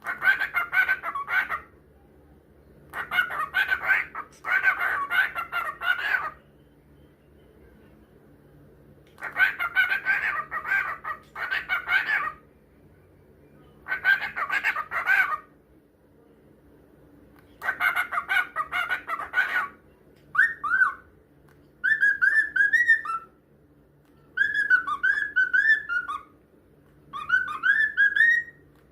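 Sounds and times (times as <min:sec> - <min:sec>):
cockatiel chattering: 0:00.0 - 0:01.7, 0:02.9 - 0:06.4, 0:09.2 - 0:12.4, 0:13.8 - 0:15.5, 0:17.6 - 0:21.0, 0:24.4 - 0:26.3, 0:27.1 - 0:28.6
cockatiel whistling song: 0:20.3 - 0:21.1, 0:21.8 - 0:23.4, 0:24.2 - 0:26.3, 0:27.1 - 0:28.8.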